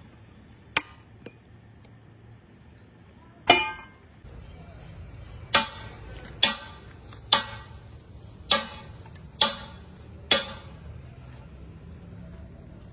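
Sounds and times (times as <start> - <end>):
low workshop hum: 0.0 - 12.9
hammer striking steel: 0.7 - 1.5, 3.5 - 4.2, 5.4 - 11.0.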